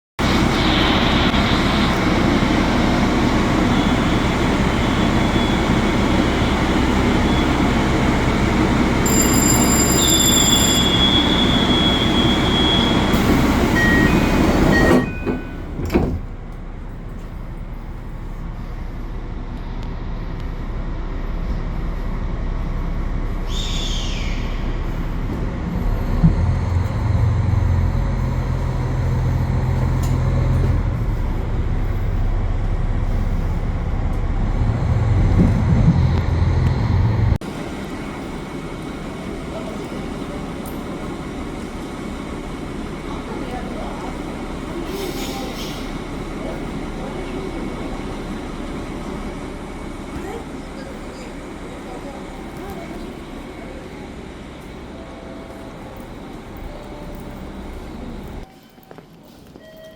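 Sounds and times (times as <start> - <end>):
diesel train rumble: 0.2 - 59.6
falling squeal: 9.0 - 15.6.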